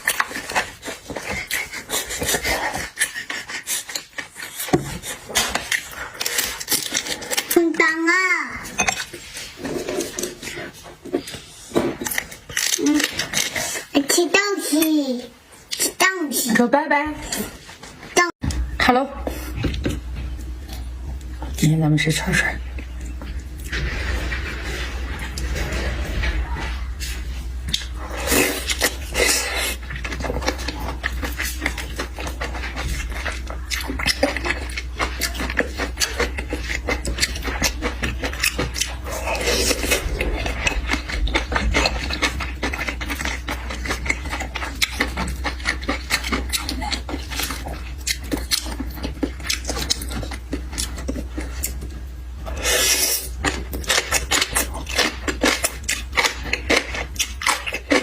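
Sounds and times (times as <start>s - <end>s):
person chewing and lip-smacking: 0.0s - 7.7s, 8.6s - 14.0s, 27.0s - 58.0s
steady low hum: 8.4s - 58.0s.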